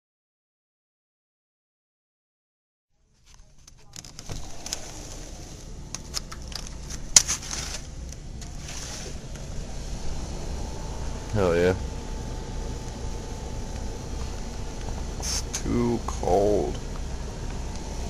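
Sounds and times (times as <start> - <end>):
crackles and sharp clicks: 3.2 - 8.6, 12.8 - 13.1, 13.7 - 15.7.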